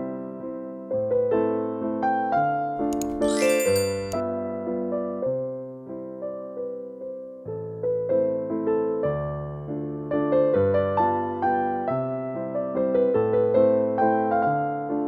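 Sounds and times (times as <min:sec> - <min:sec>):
soft piano music: 0:02.8 - 0:04.2.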